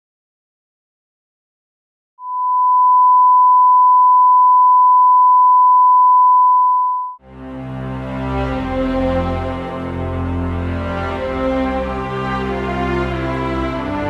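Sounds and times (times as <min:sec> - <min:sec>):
steady test tone: 0:02.2 - 0:07.2
music with low sustained notes: 0:07.2 - 0:14.0.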